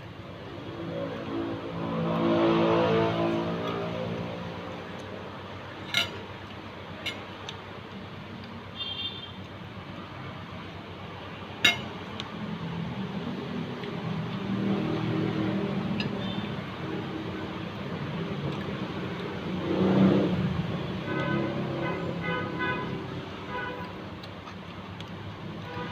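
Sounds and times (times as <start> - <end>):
vehicle engine hum: 0.0 - 25.9.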